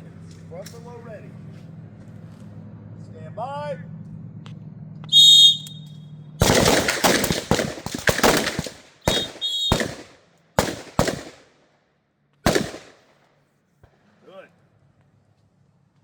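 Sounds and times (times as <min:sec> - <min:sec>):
shot timer beeps: 0:05.1 - 0:06.0, 0:09.1 - 0:09.8
rifle shots: 0:06.4 - 0:11.7, 0:12.4 - 0:13.2.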